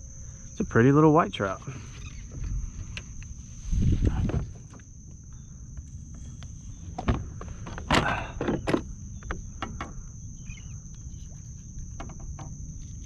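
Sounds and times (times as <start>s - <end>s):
high-pitched whine: 8.7s - 13.0s.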